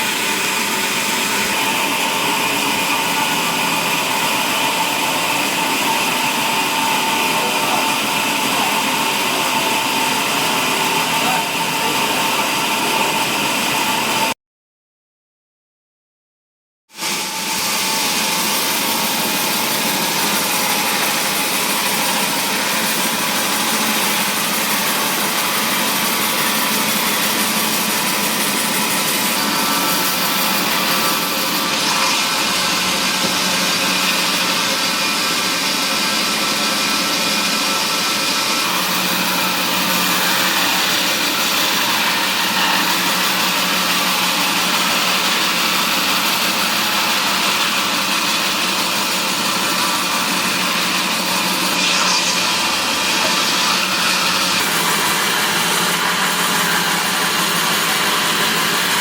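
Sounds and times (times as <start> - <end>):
wood-processing machinery running: 0.0 - 14.3, 17.0 - 59.0
high-pitched mechanical noise: 17.0 - 59.0.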